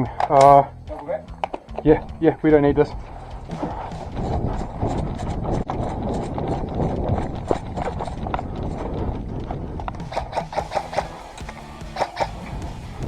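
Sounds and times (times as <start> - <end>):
dense rustling rumble: 0.0 - 13.0
running footsteps: 0.0 - 13.0.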